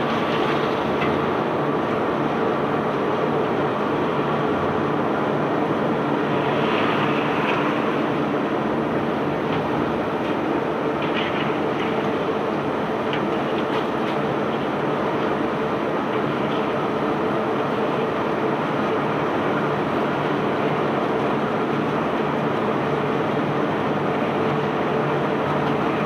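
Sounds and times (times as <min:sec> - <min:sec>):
machinery hum with rattling: 0:00.0 - 0:26.0.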